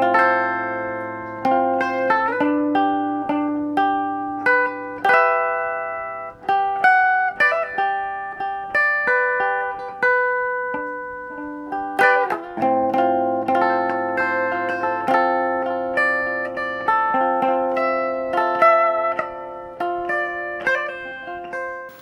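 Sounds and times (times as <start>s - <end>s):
plucked string melody: 0.0s - 22.0s.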